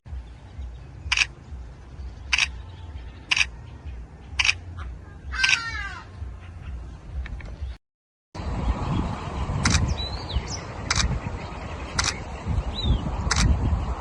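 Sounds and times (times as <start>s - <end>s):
camera shutter clicking: 1.1s - 1.3s, 2.3s - 2.5s, 3.3s - 3.5s, 4.4s - 4.6s, 10.9s - 11.1s, 12.0s - 12.2s, 13.3s - 13.5s
steady low rumble: 8.4s - 14.0s.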